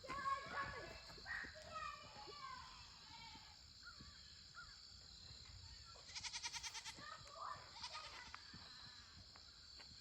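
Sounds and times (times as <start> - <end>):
goat bleating: 6.1 - 7.0.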